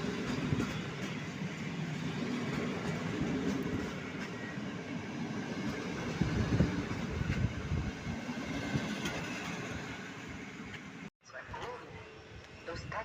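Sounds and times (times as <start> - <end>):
train wheels rumbling on rail: 0.0 - 11.8.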